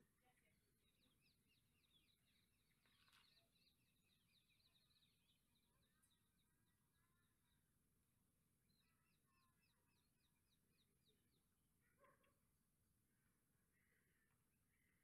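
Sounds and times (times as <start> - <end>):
small birds chirping: 0.0 - 7.7.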